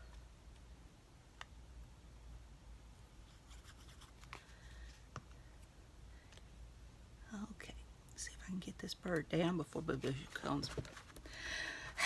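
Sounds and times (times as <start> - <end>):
faint ticks and rustles of handling: 3.1 - 6.6, 7.5 - 11.5.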